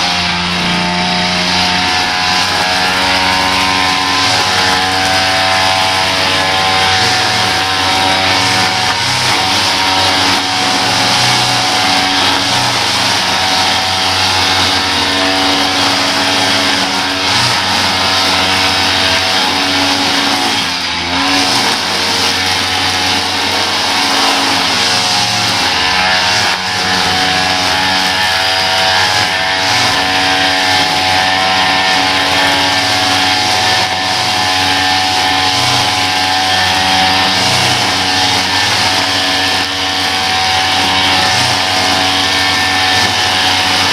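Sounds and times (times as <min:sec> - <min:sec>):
small petrol engine running: 0:00.0 - 0:43.9.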